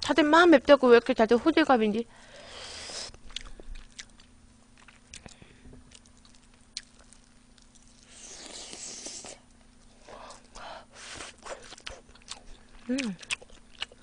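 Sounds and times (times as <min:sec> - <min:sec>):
wet mouth clicks and chewing: 0:03.2 - 0:09.3, 0:11.5 - 0:14.0.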